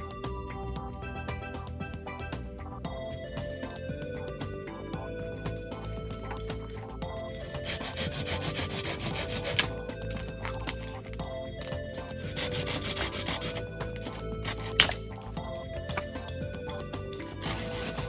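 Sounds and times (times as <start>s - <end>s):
quiet background music: 0.0s - 18.0s
rasping scraping strokes: 6.7s - 18.0s.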